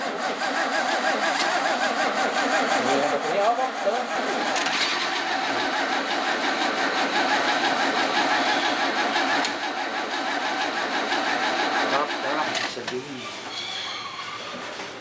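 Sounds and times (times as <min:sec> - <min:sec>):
car engine running: 0:01.0 - 0:12.6.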